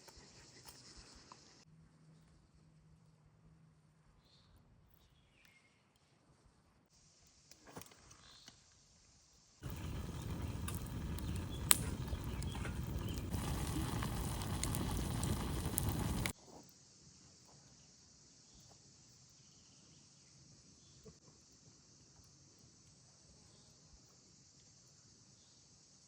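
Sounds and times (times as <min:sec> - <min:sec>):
faint steady hiss: 0:05.3 - 0:26.0
campfire crackling and popping: 0:09.6 - 0:16.3.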